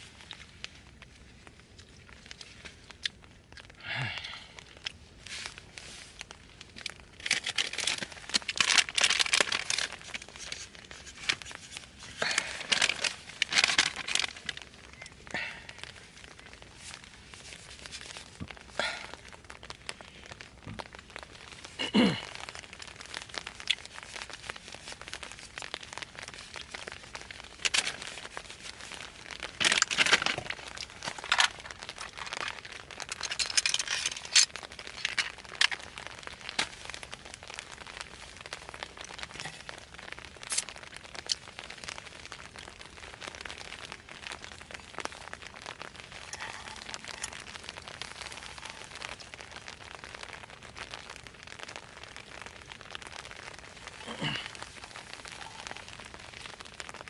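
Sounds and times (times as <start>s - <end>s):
crinkling and rustling: 0.0s - 57.0s
sharp cracks and clicks: 6.7s - 11.6s, 12.2s - 15.1s, 25.0s - 28.4s, 29.0s - 39.6s, 40.4s - 54.6s.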